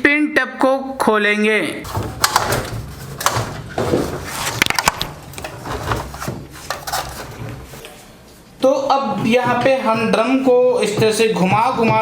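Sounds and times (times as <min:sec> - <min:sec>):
washing machine spin tub knocking: 0:01.9 - 0:07.7, 0:09.2 - 0:12.0.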